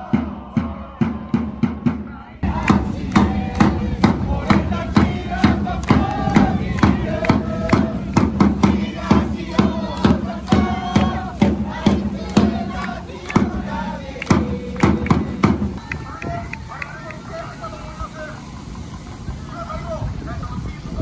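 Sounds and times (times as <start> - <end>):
steady drum beat: 0.0 - 16.4
football supporters chanting: 0.0 - 17.2.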